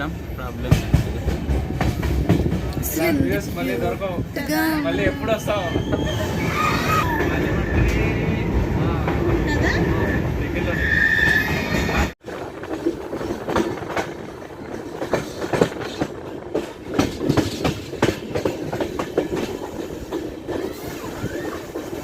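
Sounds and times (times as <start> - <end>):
train wheels clattering on rails: 0.0 - 4.2, 11.2 - 22.0.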